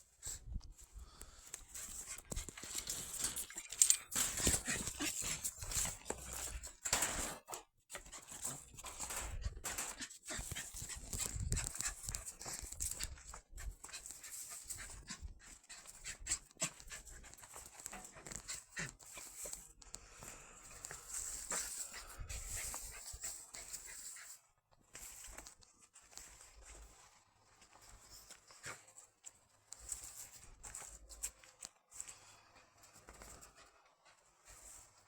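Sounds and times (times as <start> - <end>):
small dog panting: 1.5 - 6.8, 7.9 - 19.8, 20.6 - 25.6, 32.0 - 35.0.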